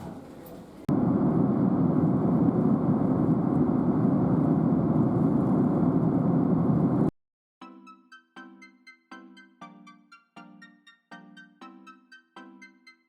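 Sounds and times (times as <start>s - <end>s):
loud engine noise: 0.9s - 7.1s.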